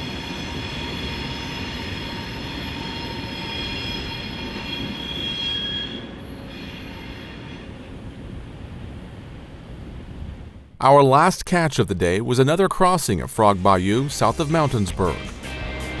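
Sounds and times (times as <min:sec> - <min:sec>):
train wheels squealing on rail: 0:00.0 - 0:08.1
rumble of passing train cars: 0:00.0 - 0:10.8, 0:14.1 - 0:16.0.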